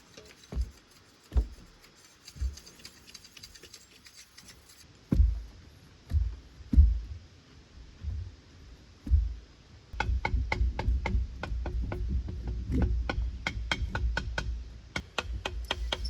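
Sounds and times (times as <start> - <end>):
wood being struck: 5.1 - 7.1, 9.0 - 9.4, 10.0 - 16.0.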